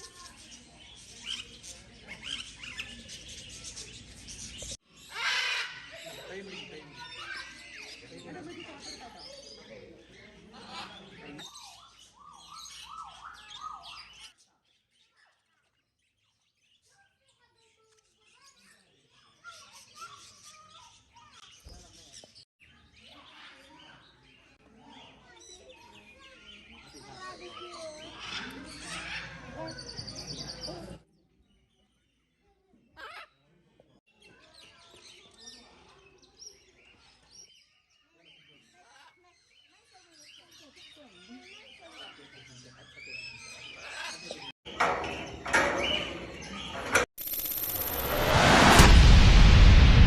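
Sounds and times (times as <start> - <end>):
birds chirping and squawking: 0.0 - 15.6, 16.2 - 32.2, 34.1 - 48.0
small bird chirps: 47.2 - 48.1.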